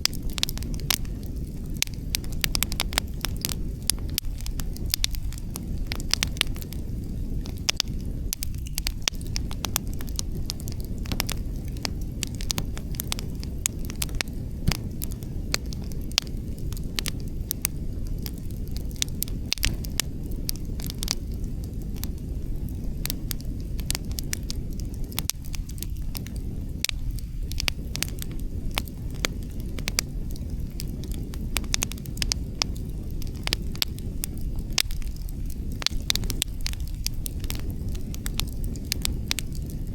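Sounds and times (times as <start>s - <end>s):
logs crackling and popping: 0.0s - 39.9s.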